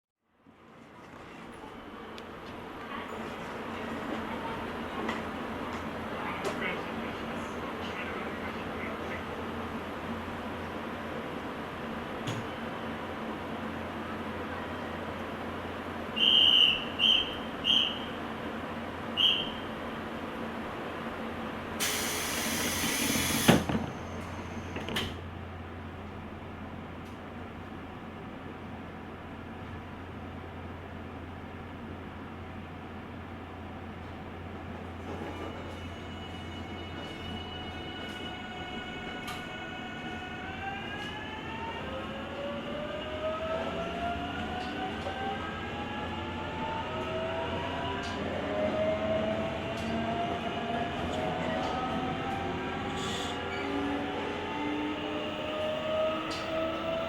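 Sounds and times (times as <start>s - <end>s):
low train hum: 0.3s - 57.0s
compressed air hissing: 21.8s - 23.7s.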